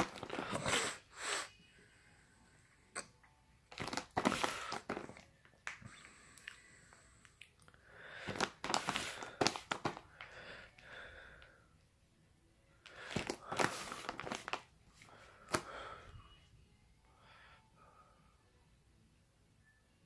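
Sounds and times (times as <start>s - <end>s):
packaging crinkling: 0.0s - 0.7s, 3.7s - 5.2s, 8.2s - 10.3s, 12.9s - 14.7s.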